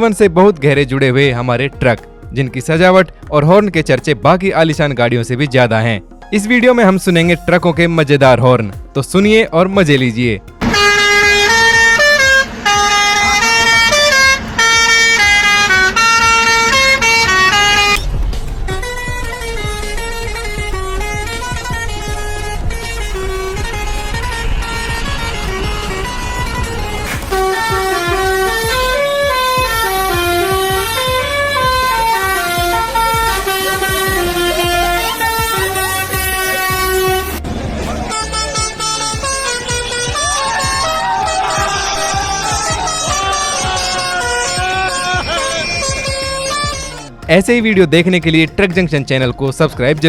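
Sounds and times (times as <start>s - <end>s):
truck musical horn tune: 9.9s - 48.6s
engine running: 10.5s - 47.3s.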